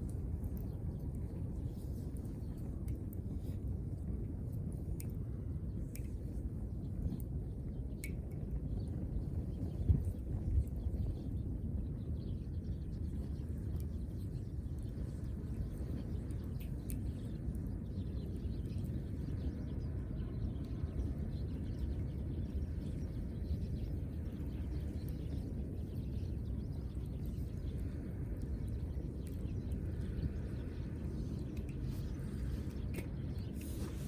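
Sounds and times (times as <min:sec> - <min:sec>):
low rumbling outdoor background noise: 0:00.0 - 0:34.0
faint clicks: 0:04.9 - 0:05.2, 0:05.8 - 0:06.4, 0:14.8 - 0:17.7, 0:31.4 - 0:34.0.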